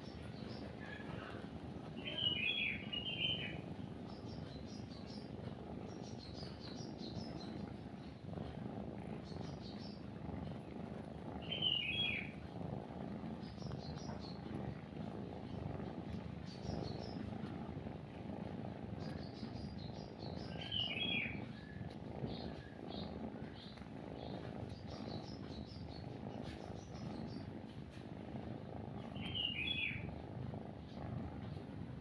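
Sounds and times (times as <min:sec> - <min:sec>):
birds chirping: 0:00.0 - 0:08.3, 0:09.1 - 0:10.8, 0:11.4 - 0:12.4, 0:13.4 - 0:14.5, 0:16.3 - 0:17.4, 0:19.0 - 0:27.7, 0:29.0 - 0:30.2
cat purring: 0:00.0 - 0:32.0.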